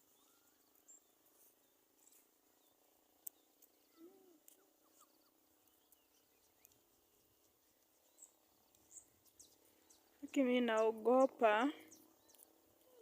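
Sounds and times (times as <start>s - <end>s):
small clicks: 3.2s - 3.8s, 12.3s - 12.5s
short chirps and calls: 3.8s - 6.8s.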